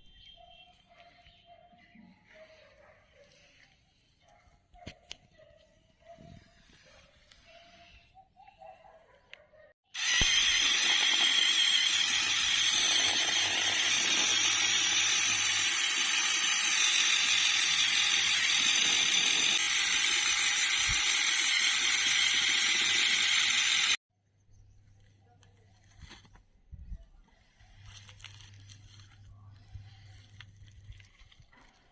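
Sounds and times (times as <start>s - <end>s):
small electric motor whine and rattle: 10.0s - 24.0s.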